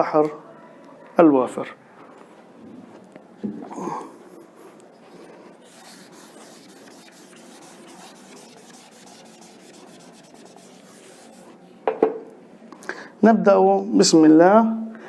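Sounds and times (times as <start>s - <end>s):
dry rubbing against a board: 5.0s - 11.6s.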